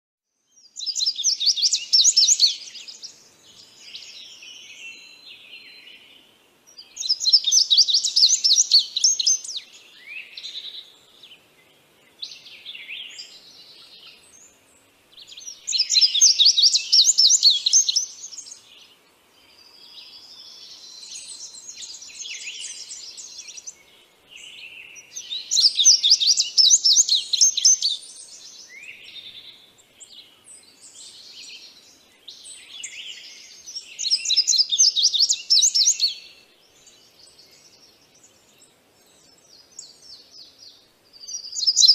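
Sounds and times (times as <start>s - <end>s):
songbird chattering song: 0.3s - 41.9s
bird chirps and calls: 0.5s - 41.9s.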